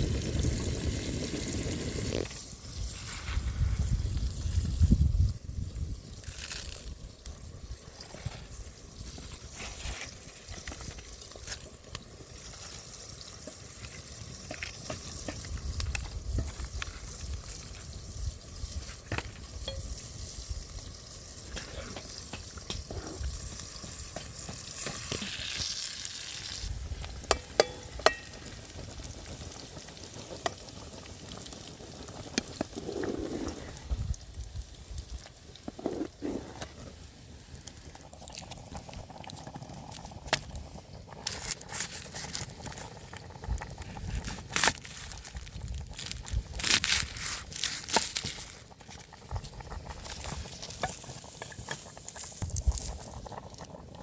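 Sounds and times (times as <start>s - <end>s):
food sizzling in a pan: 0.0s - 38.5s.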